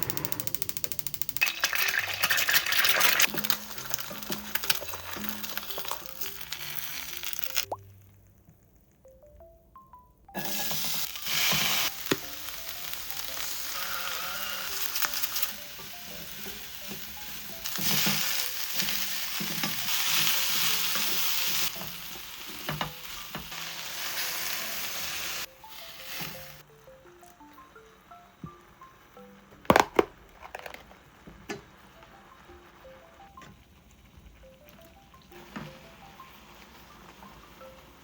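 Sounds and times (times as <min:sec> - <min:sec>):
utensil clicking against pan: 0:00.0 - 0:06.5
food sizzling in a frying pan: 0:01.3 - 0:07.8, 0:10.4 - 0:29.4.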